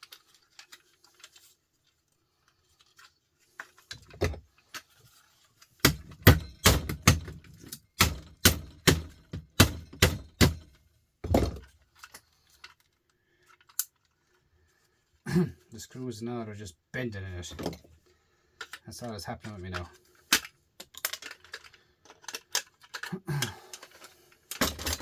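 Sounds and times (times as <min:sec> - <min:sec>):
heavy knocks on metal part: 0:05.8 - 0:07.4, 0:08.0 - 0:11.6.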